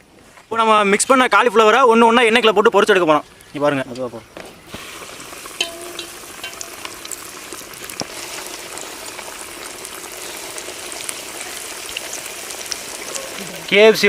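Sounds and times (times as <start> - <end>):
deep-frying sizzle with pops: 3.9 - 14.0.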